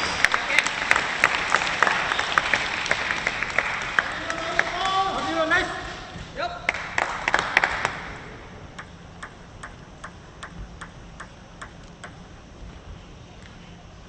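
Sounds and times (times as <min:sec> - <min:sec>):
people clapping: 0:00.0 - 0:05.6, 0:06.6 - 0:08.9
table tennis ball bouncing: 0:08.7 - 0:12.3.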